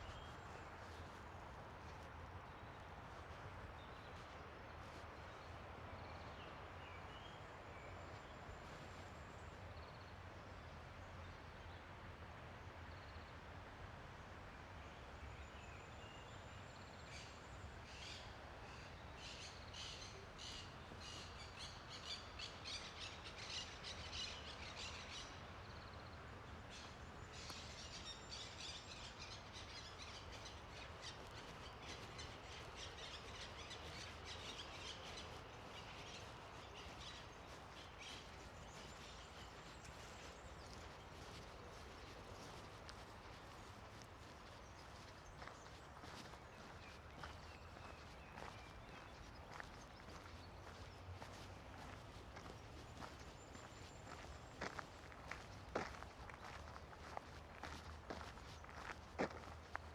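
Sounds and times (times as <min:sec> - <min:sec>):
small birds chirping: 0:26.8 - 0:59.9.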